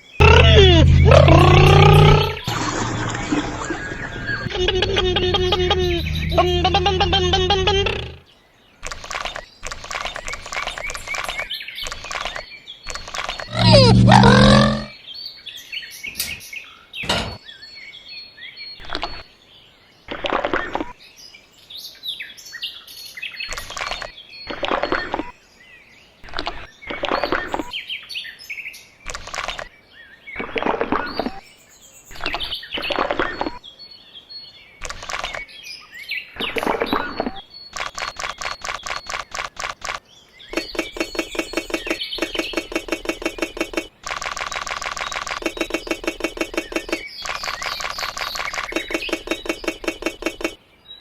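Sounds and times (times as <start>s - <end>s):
birds chirping: 0.0s - 14.9s, 34.5s - 51.0s
rising and falling pitched sound: 0.2s - 3.0s, 13.5s - 14.9s.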